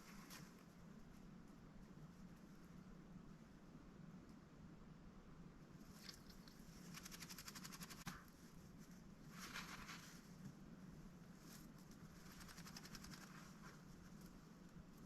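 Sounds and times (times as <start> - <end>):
duck bill rapid ticking: 6.1 - 8.2, 12.2 - 13.5.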